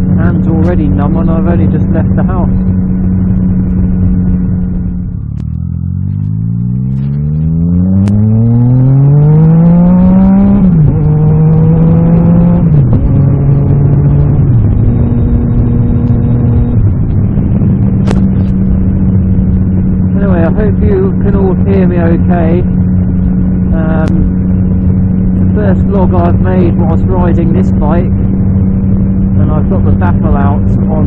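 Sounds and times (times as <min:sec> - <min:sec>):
loud motorcycle engine accelerating: 0:00.0 - 0:31.0.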